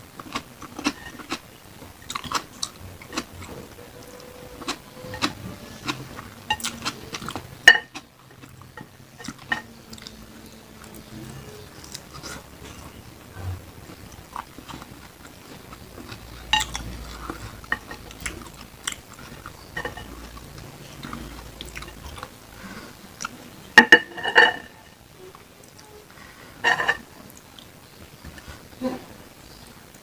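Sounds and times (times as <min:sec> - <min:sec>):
chewing food: 0:00.1 - 0:23.4.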